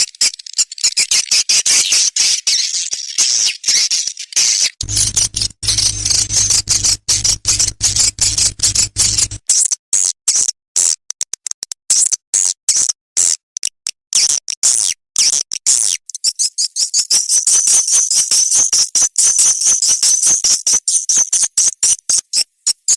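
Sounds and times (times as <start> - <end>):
low hum: 4.8 - 9.4
swiftlets twittering: 4.8 - 9.4.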